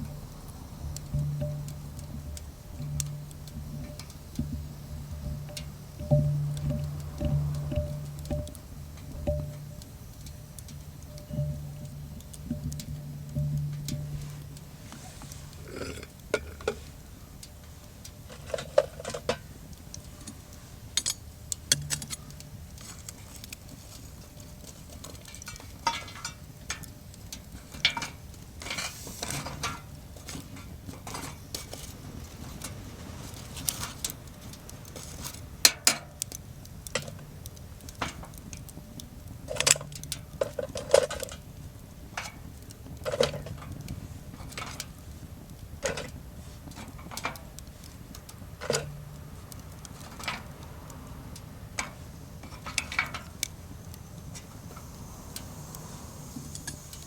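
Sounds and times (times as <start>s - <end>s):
metal cookware clinking: 1.0s - 16.8s, 21.0s - 22.5s.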